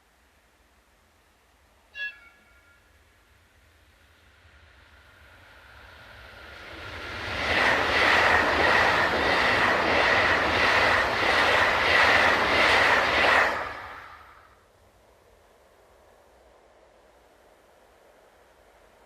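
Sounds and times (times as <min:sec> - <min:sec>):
high-pitched rail ring: 0:01.9 - 0:03.0
train wheels clattering over rails: 0:06.3 - 0:14.2.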